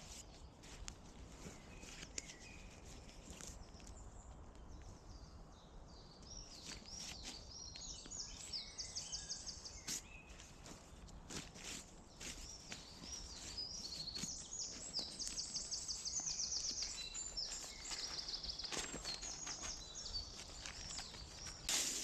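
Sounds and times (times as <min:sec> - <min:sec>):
faint woodland birdsong: 0:00.0 - 0:22.0
rustling: 0:09.2 - 0:22.0.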